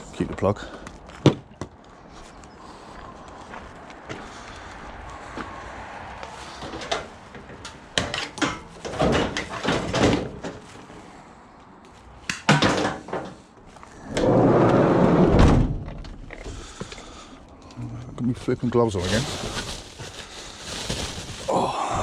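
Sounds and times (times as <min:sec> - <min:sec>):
scrap metal clattering: 0:06.6 - 0:10.7.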